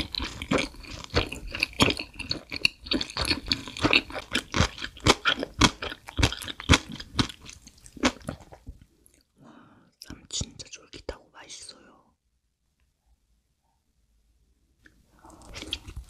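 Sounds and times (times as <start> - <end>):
chewing with mouth clicks: 0.0 - 9.3, 15.2 - 16.0.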